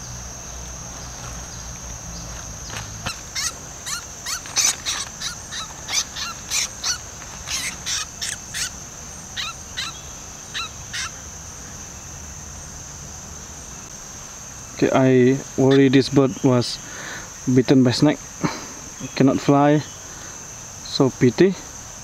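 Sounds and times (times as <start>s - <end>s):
high-pitched insect drone: 0.0s - 22.0s
bird giving sharp calls: 2.6s - 11.2s.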